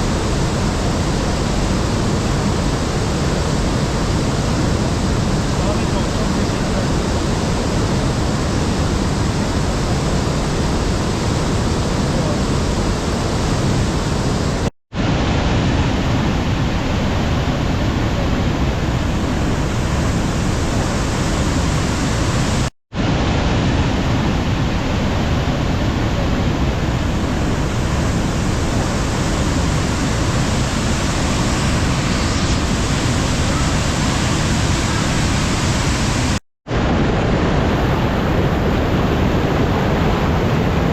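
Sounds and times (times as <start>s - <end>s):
waterfall rushing: 27.5s - 36.4s.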